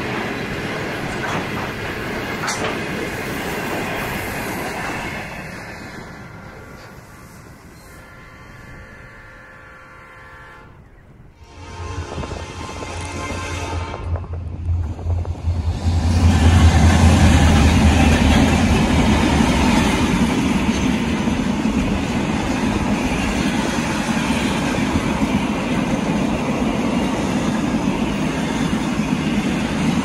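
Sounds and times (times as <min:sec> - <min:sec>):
train wheels rolling over track: 0:00.0 - 0:08.0, 0:12.0 - 0:30.0
locomotive engine drone: 0:11.9 - 0:26.2.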